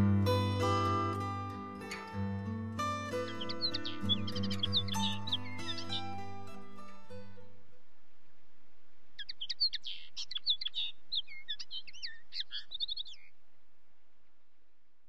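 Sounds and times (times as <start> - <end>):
music: 0.0 - 7.7
songbird singing: 0.0 - 14.7.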